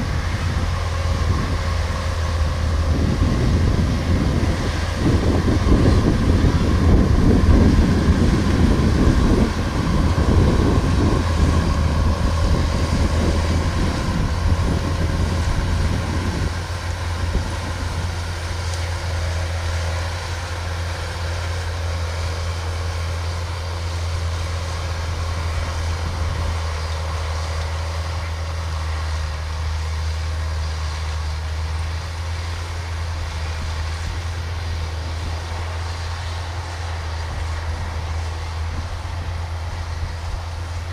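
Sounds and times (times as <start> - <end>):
diesel engine droning: 0.0 - 40.9.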